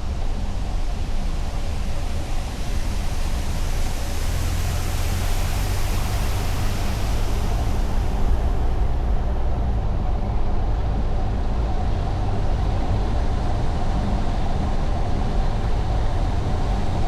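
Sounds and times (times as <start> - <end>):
car road noise: 0.0 - 17.0
tyre hiss: 1.6 - 8.8.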